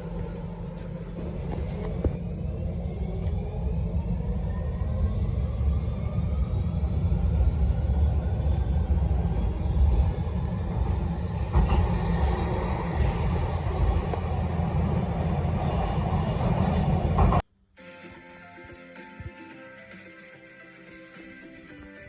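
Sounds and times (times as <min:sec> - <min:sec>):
train low rumble: 0:00.0 - 0:17.4.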